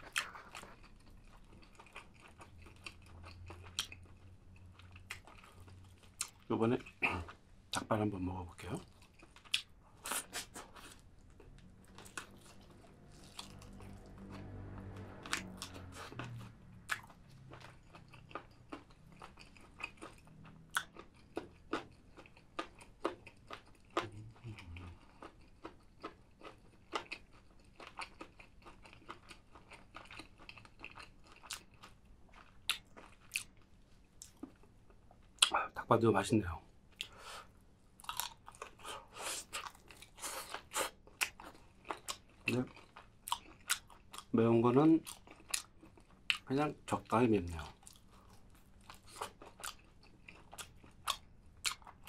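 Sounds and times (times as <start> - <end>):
person crunching and chewing: 0.0 - 7.9, 8.6 - 35.6, 36.9 - 44.4, 45.0 - 52.0.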